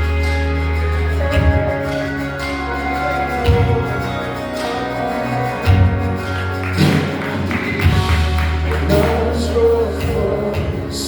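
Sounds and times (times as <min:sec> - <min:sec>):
sustained bass and chords: 0:00.0 - 0:11.0
sharp percussive hits: 0:03.4 - 0:10.7.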